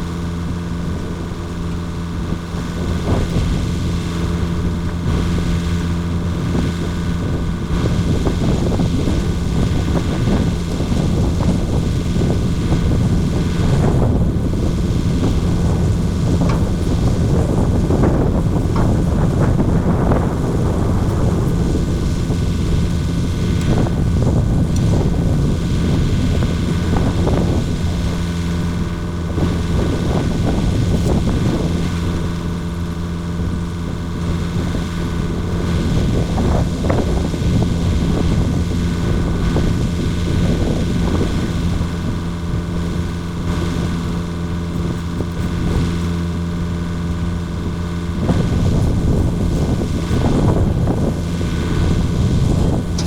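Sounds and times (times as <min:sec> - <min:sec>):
excavator diesel engine running: 0:00.0 - 0:36.8.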